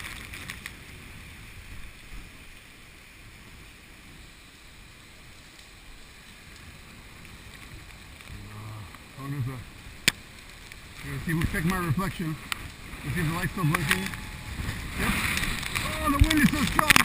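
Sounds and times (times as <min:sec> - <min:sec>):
rain hitting camera: 0:00.0 - 0:17.0
wind buffeting camera: 0:09.7 - 0:17.0.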